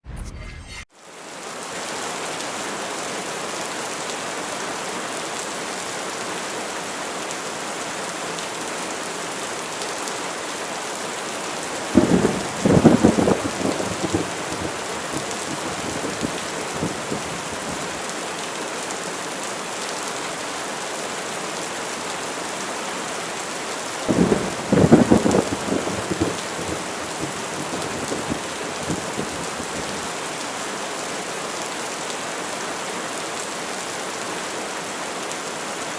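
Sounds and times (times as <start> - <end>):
rain hissing: 11.4 - 18.5, 23.9 - 30.9
cracking thunderclaps: 11.8 - 18.0, 24.1 - 30.2.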